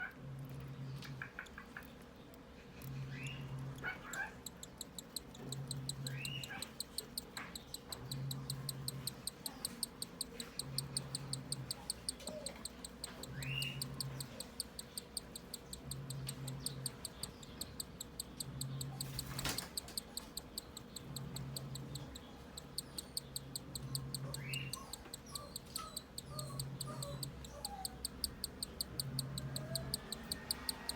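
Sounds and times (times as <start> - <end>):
chick begging with fast ticking: 3.2 - 30.9.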